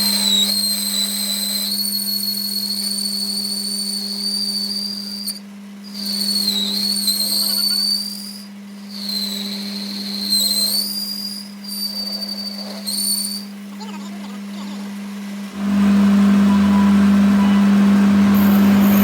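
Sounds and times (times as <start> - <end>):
high wavering whine: 0.0 - 19.0
steady low hum: 6.7 - 19.0.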